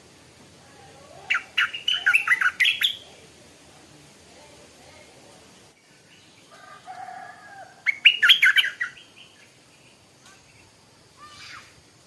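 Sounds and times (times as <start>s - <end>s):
bird warbling: 1.1s - 3.3s, 7.7s - 9.5s.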